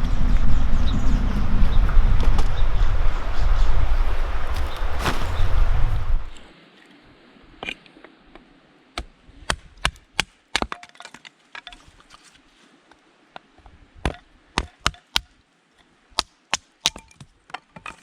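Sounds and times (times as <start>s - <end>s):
loud rushing noise: 0.0s - 6.5s.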